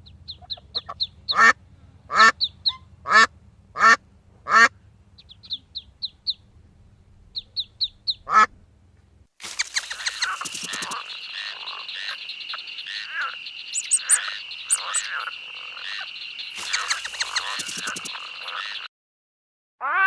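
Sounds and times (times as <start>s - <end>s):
short repeated animal calls: 9.4s - 18.9s
steady high trill: 13.8s - 15.1s.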